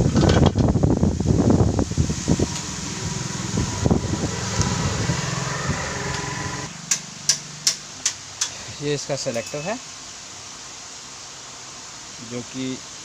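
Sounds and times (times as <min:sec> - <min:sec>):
motor humming: 0:00.6 - 0:06.8.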